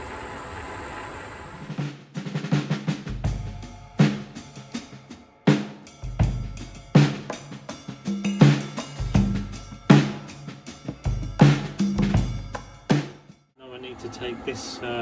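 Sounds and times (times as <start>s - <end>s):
drum kit beat: 1.8s - 13.3s.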